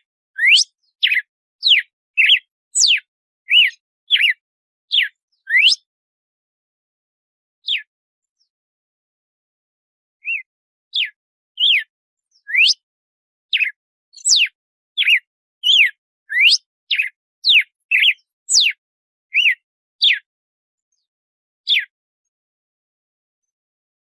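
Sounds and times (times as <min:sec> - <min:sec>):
bird whistling song: 0:00.0 - 0:05.9, 0:07.6 - 0:08.5, 0:10.2 - 0:12.9, 0:13.5 - 0:20.3, 0:21.7 - 0:21.9.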